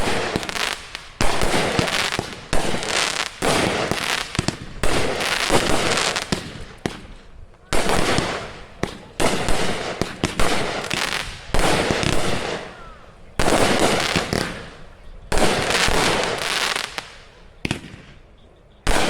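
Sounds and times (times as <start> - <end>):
crackling firework bursts: 0.0 - 19.0.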